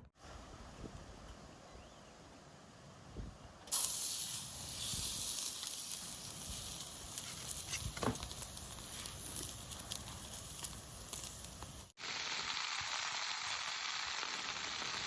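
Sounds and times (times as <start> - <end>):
wood fire crackling: 3.7 - 15.0.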